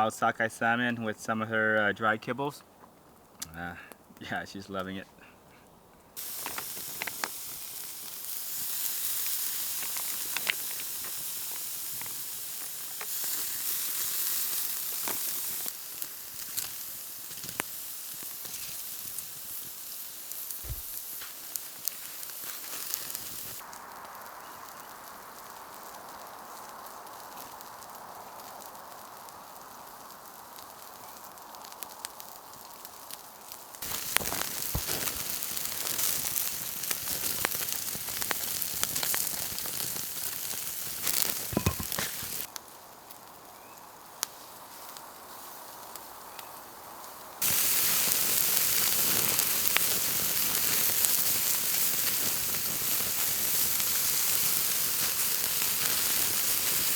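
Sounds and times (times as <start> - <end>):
food sizzling: 6.2 - 30.6, 33.8 - 42.5, 47.4 - 56.9
campfire crackling and popping: 6.2 - 56.9.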